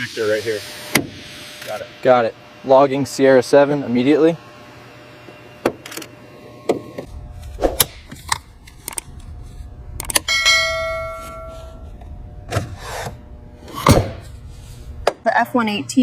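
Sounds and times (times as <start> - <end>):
low steady rumble: 7.0 - 16.0
ringing metallic clang: 10.0 - 11.8.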